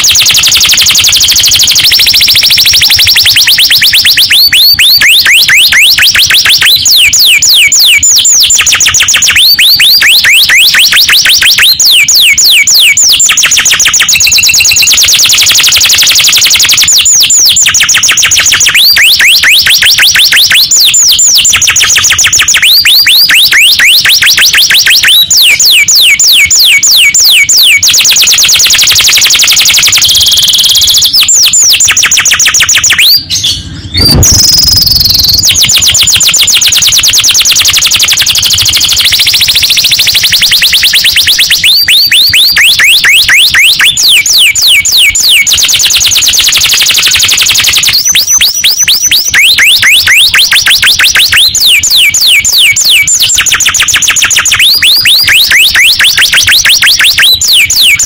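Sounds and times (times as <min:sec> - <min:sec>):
canary singing trills: 0:31.0 - 0:45.5.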